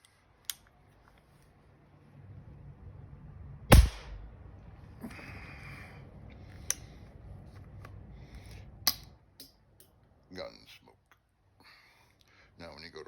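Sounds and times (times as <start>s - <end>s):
rifle shot crack: 3.7s - 4.3s.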